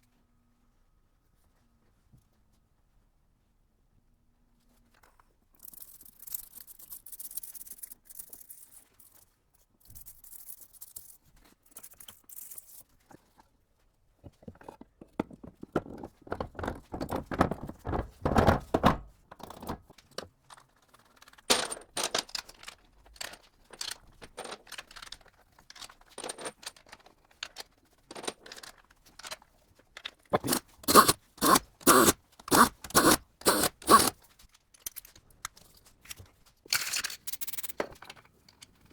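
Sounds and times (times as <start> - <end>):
scraping and rubbing: 30.3 - 34.2.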